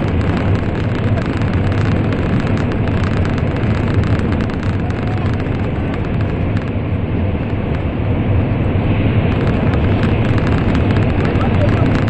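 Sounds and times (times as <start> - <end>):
faint clicks: 0.0 - 6.8, 7.4 - 7.9, 9.3 - 12.0
train running rumble: 0.0 - 12.0.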